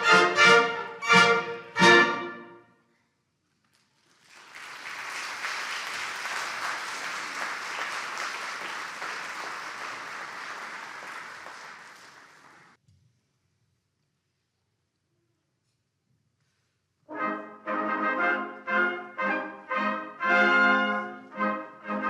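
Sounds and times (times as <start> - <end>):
audience applauding: 3.9 - 12.8.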